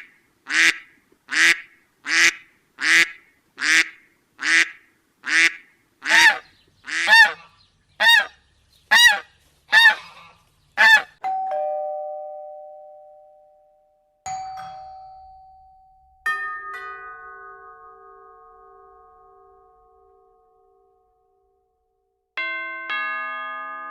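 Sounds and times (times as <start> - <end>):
goose honking: 0.5 - 11.2
multi-tone bell chime: 11.2 - 21.1, 22.4 - 23.9
two-note doorbell chime: 11.2 - 21.2, 22.4 - 23.9.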